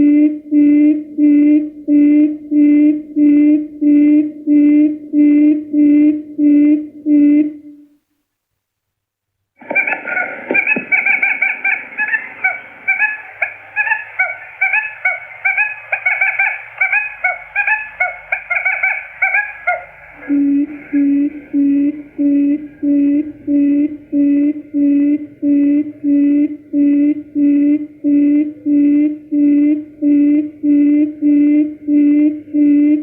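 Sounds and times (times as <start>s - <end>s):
quail chicks chirping: 9.6s - 22.9s
quail low hooting: 9.6s - 33.0s.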